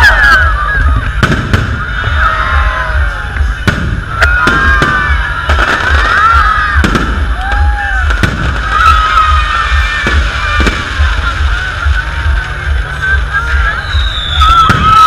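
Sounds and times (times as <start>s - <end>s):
low rumble: 0.0s - 15.0s
firework whistles: 13.7s - 15.0s.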